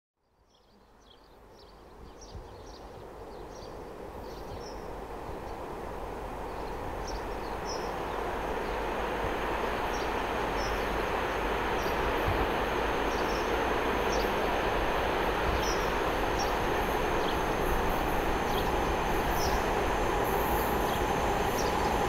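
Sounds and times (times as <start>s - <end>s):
train rumbling on track: 3.0s - 22.0s
birds chirping: 15.5s - 19.7s.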